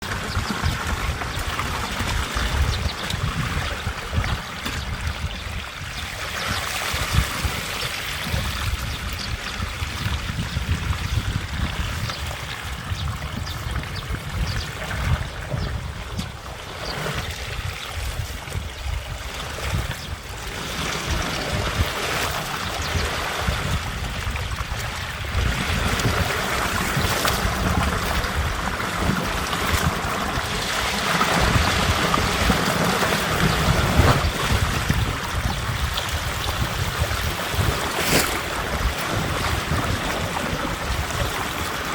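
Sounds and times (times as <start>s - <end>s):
water rushing and splashing: 0.0s - 41.9s
wind buffeting microphone: 0.0s - 41.9s.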